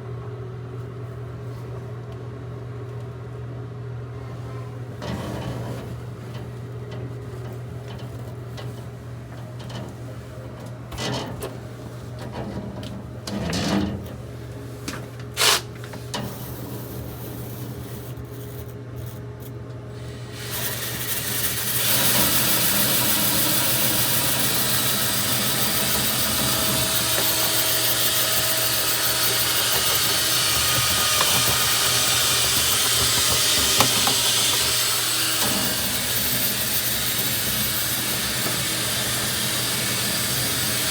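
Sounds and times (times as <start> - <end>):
motor humming: 20.0 - 40.9
knocks and scrapes: 25.9 - 34.9.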